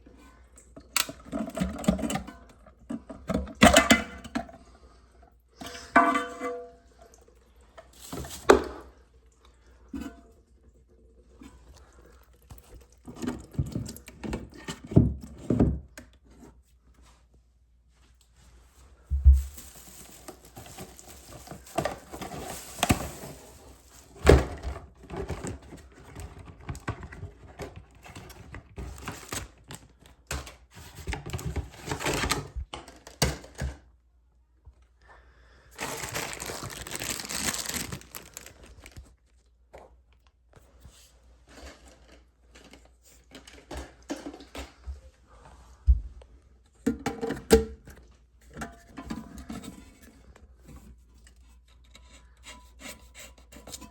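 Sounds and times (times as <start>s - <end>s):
rustling: 17.9s - 24.3s, 35.8s - 39.4s.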